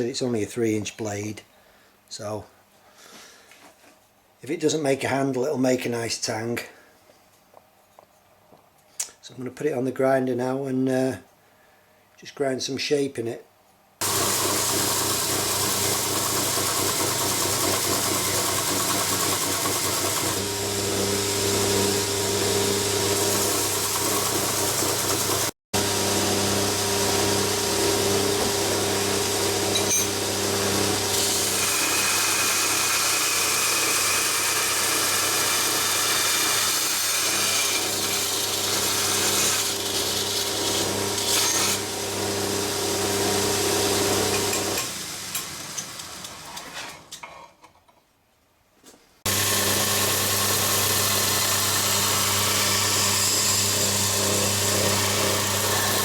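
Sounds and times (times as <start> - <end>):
grinder motor humming: 14.0 - 46.5, 49.3 - 56.0.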